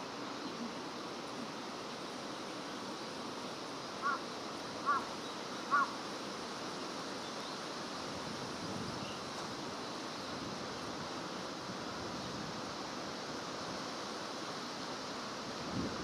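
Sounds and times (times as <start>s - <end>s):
steady outdoor hiss: 0.0s - 16.0s
bird calling: 4.0s - 6.0s.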